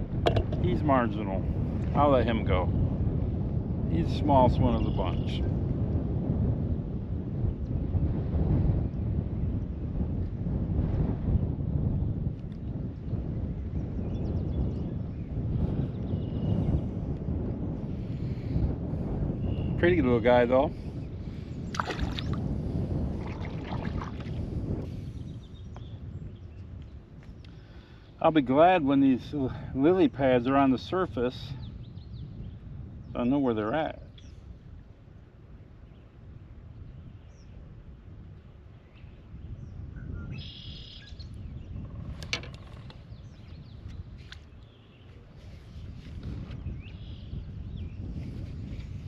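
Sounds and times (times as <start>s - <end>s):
water splashing against kayak: 21.7s - 24.6s
small birds chirping: 38.9s - 46.0s.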